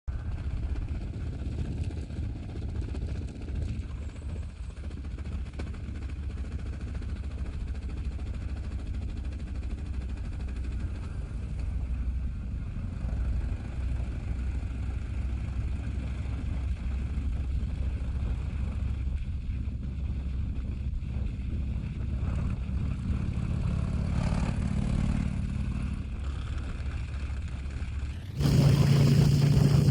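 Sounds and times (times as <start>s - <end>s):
motorcycle engine cruising: 28.2s - 29.9s.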